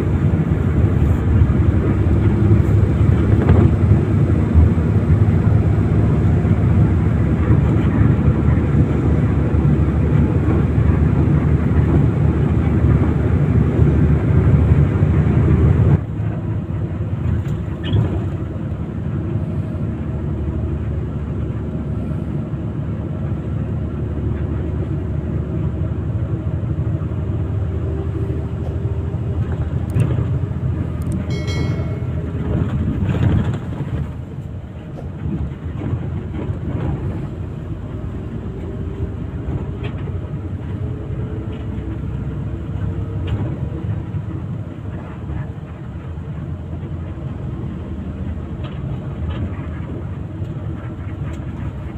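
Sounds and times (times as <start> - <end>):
bus engine and road rumble: 0.0 - 51.9
brief high-pitched tone: 31.3 - 32.6.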